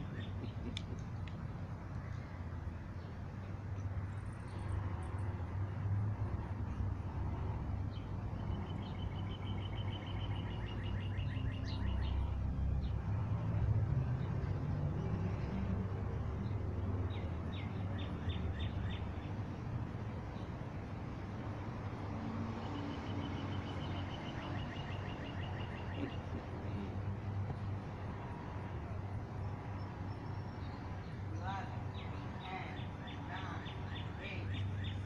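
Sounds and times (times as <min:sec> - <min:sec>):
songbird chirping: 0:07.8 - 0:13.6, 0:16.4 - 0:28.2, 0:28.8 - 0:35.0.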